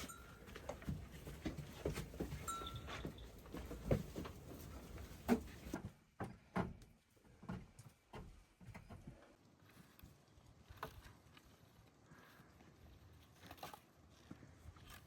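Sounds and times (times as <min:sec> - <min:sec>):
goats moving about: 0:00.0 - 0:06.0.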